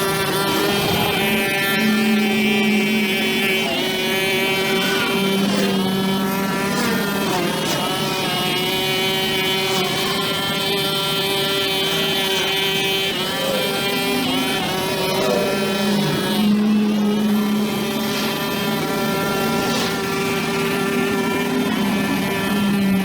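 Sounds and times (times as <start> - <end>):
brush cutter engine whining: 0.0 - 23.0.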